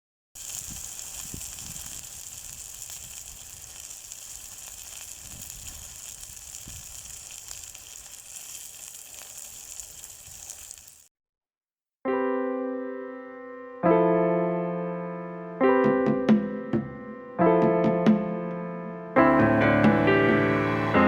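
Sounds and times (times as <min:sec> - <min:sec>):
meat sizzling in a frying pan: 0:00.4 - 0:11.1.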